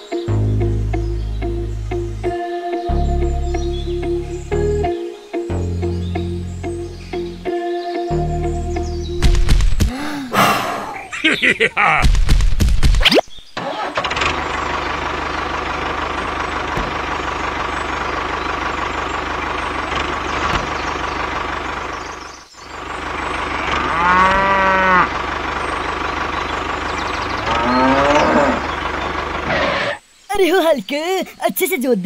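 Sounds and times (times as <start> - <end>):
tractor engine running: 13.6 - 29.9
cow mooing: 23.4 - 25.2, 27.4 - 28.7.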